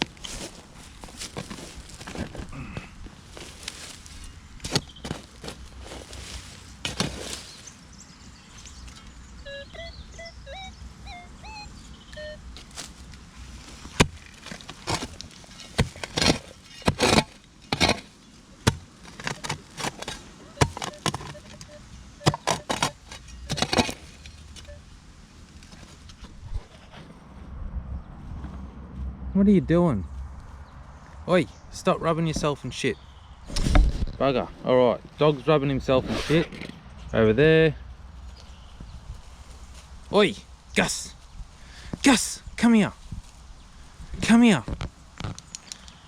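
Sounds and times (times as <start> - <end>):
digging tool chopping soil: 4.6 - 6.2, 6.8 - 7.6, 13.8 - 24.2
bird chirping: 7.0 - 12.8, 19.2 - 24.8, 30.0 - 33.6.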